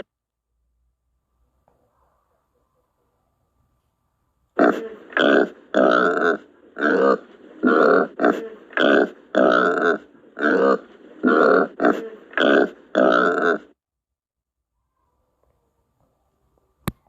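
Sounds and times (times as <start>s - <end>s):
animal giving short rough calls: 4.6s - 13.6s.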